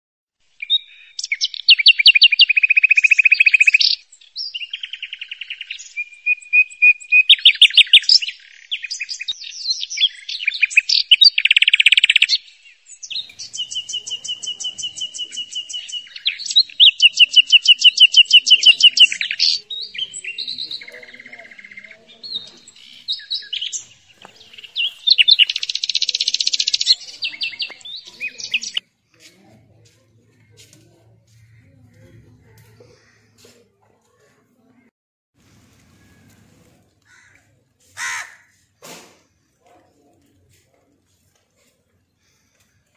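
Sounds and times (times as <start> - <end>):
songbird singing trills: 0.6 - 28.8.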